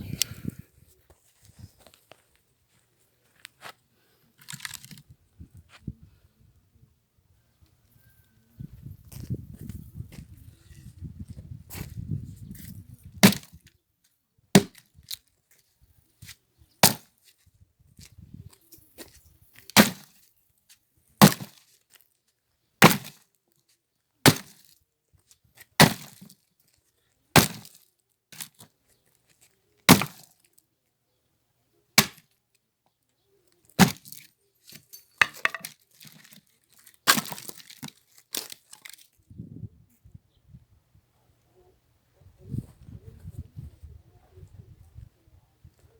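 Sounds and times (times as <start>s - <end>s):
wood cracking and splitting: 4.4s - 5.0s, 13.2s - 13.6s, 19.7s - 20.2s, 21.2s - 21.6s, 22.8s - 23.2s, 24.2s - 24.6s, 25.8s - 26.3s, 27.4s - 27.8s, 29.9s - 30.3s, 32.0s - 32.2s, 33.8s - 34.3s, 35.2s - 39.2s
axe chopping firewood: 13.2s - 13.6s, 14.6s - 14.8s, 16.8s - 17.1s, 19.7s - 20.2s, 21.2s - 21.6s, 22.8s - 23.2s, 24.2s - 24.6s, 25.8s - 26.3s, 27.4s - 27.7s, 29.9s - 30.3s, 32.0s - 32.2s, 33.8s - 34.3s, 35.2s - 36.3s, 37.0s - 38.6s.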